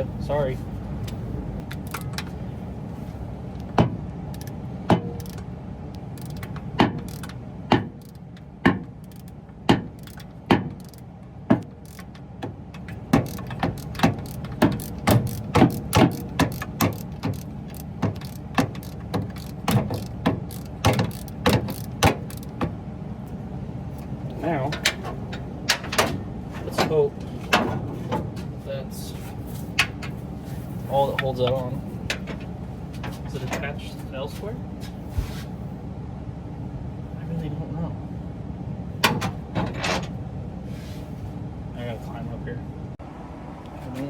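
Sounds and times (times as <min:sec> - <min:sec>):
steady low hum: 0:00.0 - 0:44.0
socket ratchet clicking: 0:04.3 - 0:04.6, 0:06.1 - 0:07.4, 0:09.0 - 0:11.1, 0:11.8 - 0:12.2, 0:13.2 - 0:22.6.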